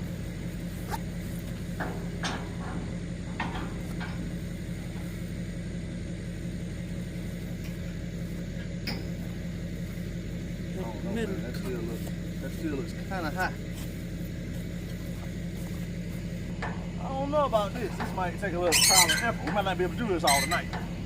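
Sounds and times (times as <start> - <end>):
pickup engine idling: 0.0 - 21.0
metal clanks and knocks: 1.7 - 5.1, 16.5 - 21.0.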